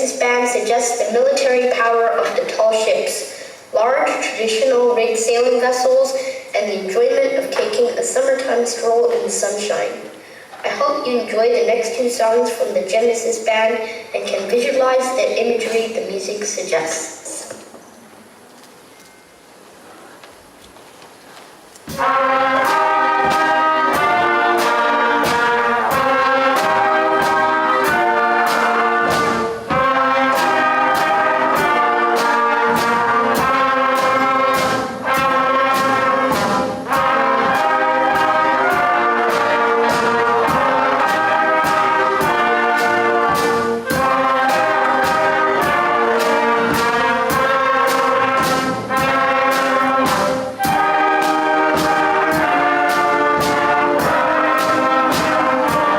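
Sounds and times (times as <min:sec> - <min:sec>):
concert band playing: 0:21.6 - 0:55.9
percussion beat: 0:21.8 - 0:55.9
brass: 0:21.9 - 0:55.9.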